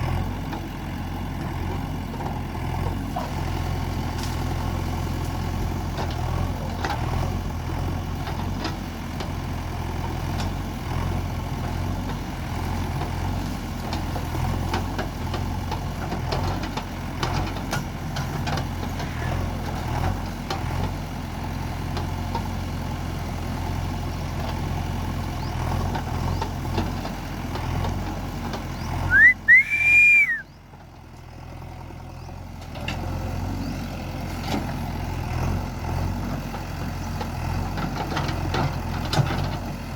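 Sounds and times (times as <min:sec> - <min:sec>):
diesel engine running: 0:00.0 - 0:39.9
high-pitched whistling tone: 0:29.1 - 0:30.5.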